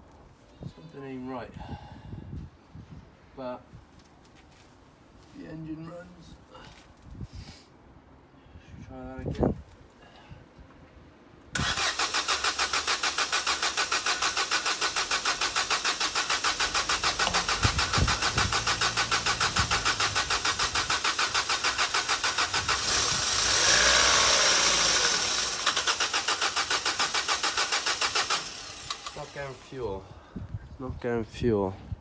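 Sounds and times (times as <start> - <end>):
car engine cranking with starter: 11.6 - 29.8.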